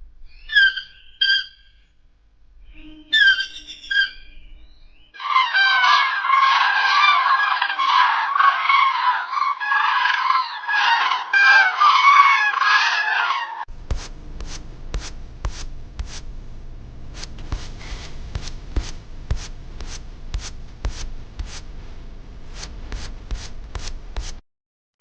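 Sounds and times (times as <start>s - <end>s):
birds calling: 0.3s - 1.9s, 2.7s - 13.7s.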